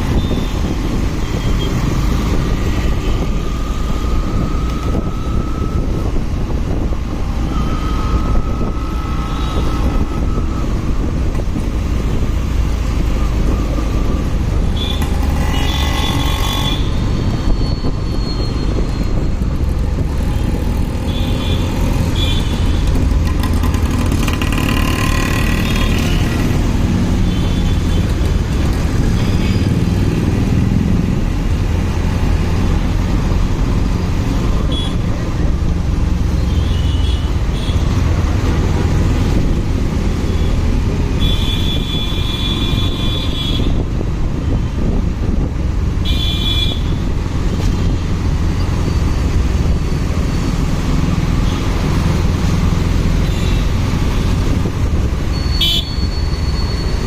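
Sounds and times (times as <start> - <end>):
motorcycle engine and road rumble: 0.0 - 57.0
vehicles passing: 0.0 - 57.0.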